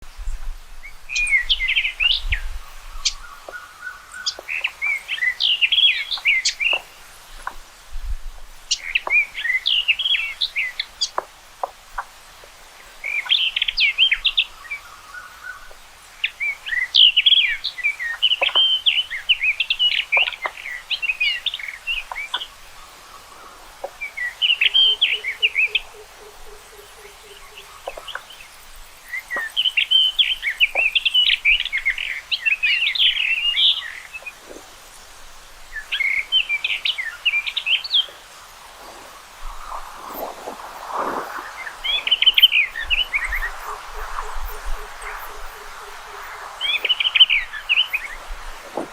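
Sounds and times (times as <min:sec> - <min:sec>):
rock thrush singing: 0:08.6 - 0:11.3, 0:35.7 - 0:48.9.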